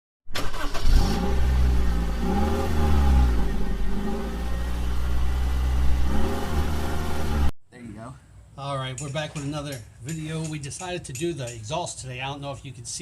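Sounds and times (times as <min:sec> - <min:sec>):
car engine revving: 0:00.4 - 0:07.5.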